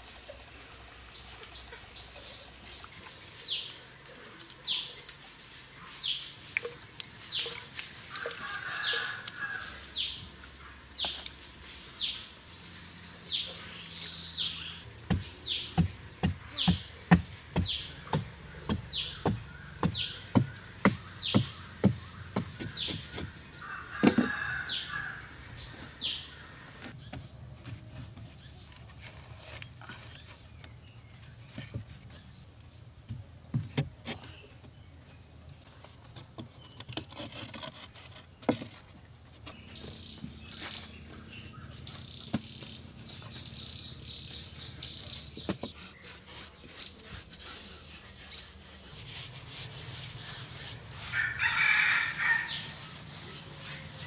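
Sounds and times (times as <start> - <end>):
birds chirping: 5.8 - 33.0, 37.8 - 54.0
rooster crowing: 8.1 - 9.8, 23.6 - 25.3, 51.0 - 53.0
knocks and taps on earth and stone: 15.1 - 23.3.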